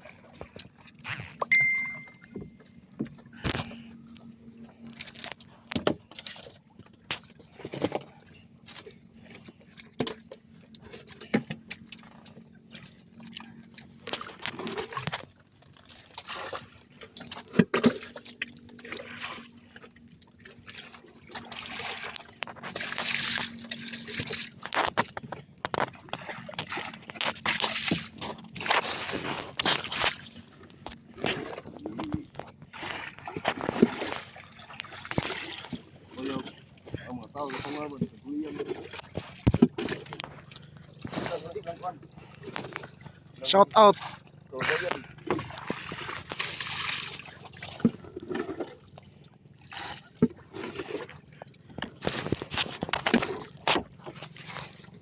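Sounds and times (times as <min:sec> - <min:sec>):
water splashing around boat: 0:00.0 - 0:55.0
knocks and clatter on board: 0:05.6 - 0:08.2, 0:38.0 - 0:40.4, 0:50.2 - 0:54.3.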